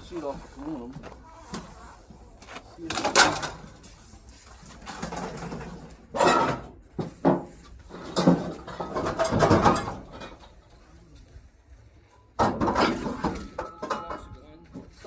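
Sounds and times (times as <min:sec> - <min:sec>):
scrap metal scraping and clattering: 0:02.9 - 0:10.8, 0:12.4 - 0:14.4.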